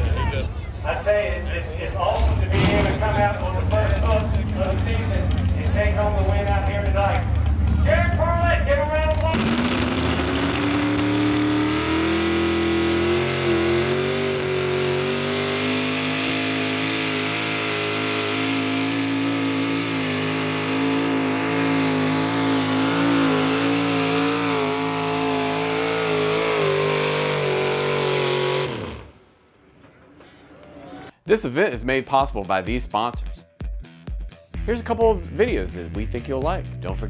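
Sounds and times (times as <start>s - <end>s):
truck engine at full throttle: 0.0s - 29.3s.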